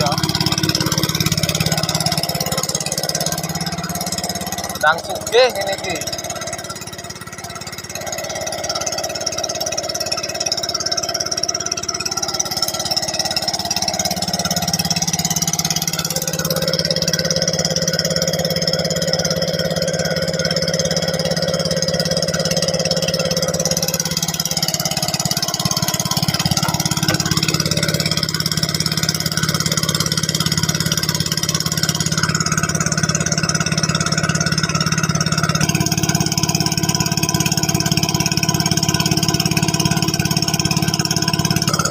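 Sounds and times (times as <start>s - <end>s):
engine running: 0.0s - 41.9s.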